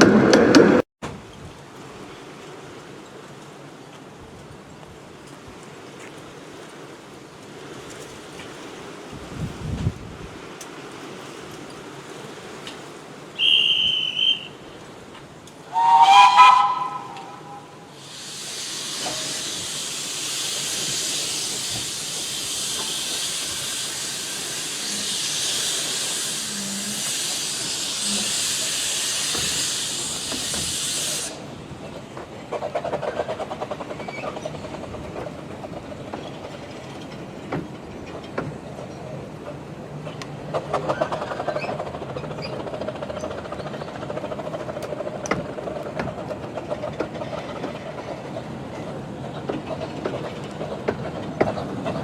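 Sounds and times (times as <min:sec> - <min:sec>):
train clatter: 0:06.1 - 0:52.0
short high whistle: 0:13.4 - 0:14.6, 0:15.7 - 0:17.8
steam whistle: 0:13.4 - 0:14.6, 0:15.7 - 0:20.2, 0:23.8 - 0:31.4
steam hissing: 0:15.7 - 0:31.7.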